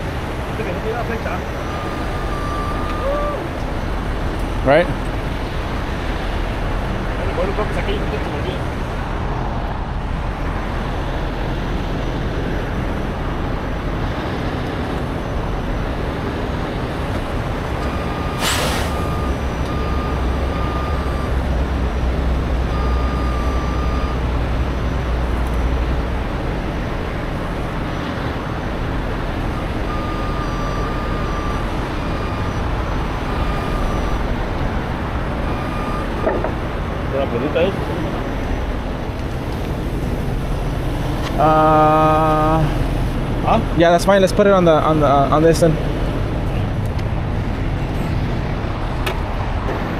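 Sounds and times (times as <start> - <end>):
diesel truck engine: 0.0 - 49.9
reversing alarm beeping: 1.3 - 3.5, 17.8 - 24.3, 29.5 - 34.2, 35.4 - 36.4
air brake hiss: 18.4 - 19.1.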